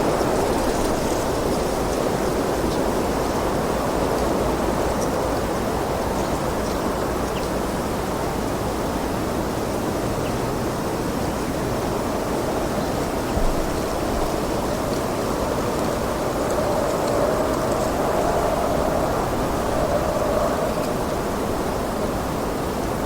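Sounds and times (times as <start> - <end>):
low wind buffet: 11.7 - 23.0
wind blowing: 12.5 - 23.0.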